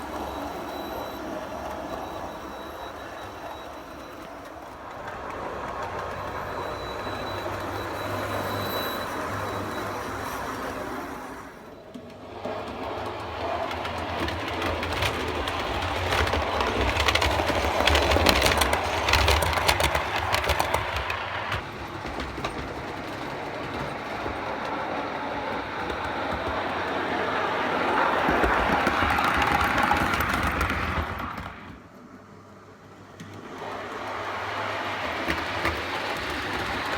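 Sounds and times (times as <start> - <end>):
model train wheels clicking: 0.0 - 36.9.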